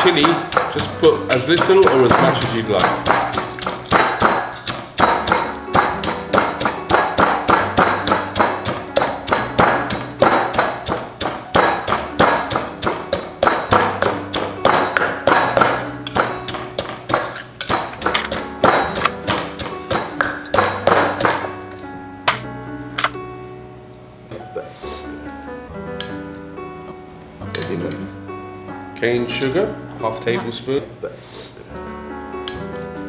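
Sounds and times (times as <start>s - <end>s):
pestle pounding in a mortar: 0.0s - 21.7s.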